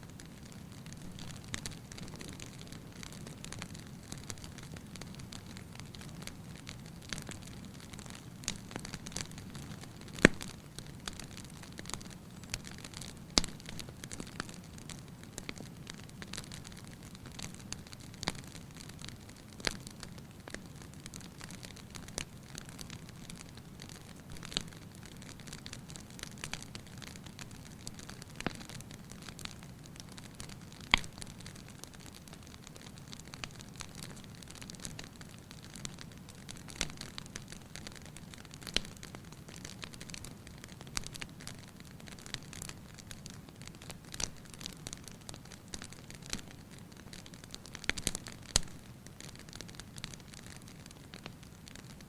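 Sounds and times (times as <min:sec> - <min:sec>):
fireplace fire crackling: 0:00.0 - 0:52.0.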